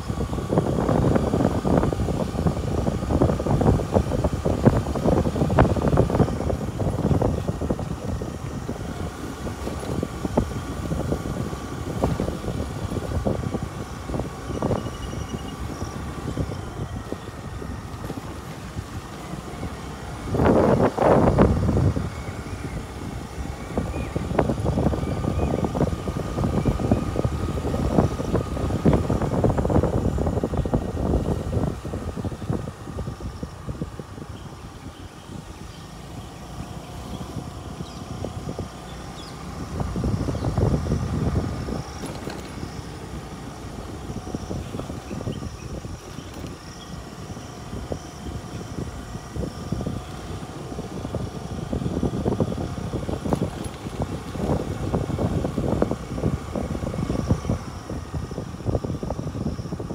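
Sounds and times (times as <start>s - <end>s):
faint steady whine: 0.0s - 59.9s
vehicle rumbling off-road: 0.0s - 59.9s
knocks and rattles from bumps: 42.0s - 42.7s.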